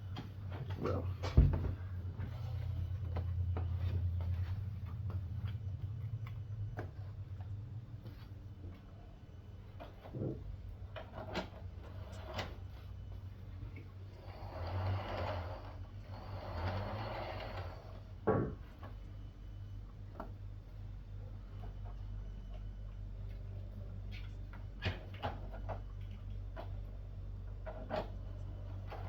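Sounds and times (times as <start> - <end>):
rolling rumble: 0.0 - 24.8
model train motor hum: 14.2 - 18.1.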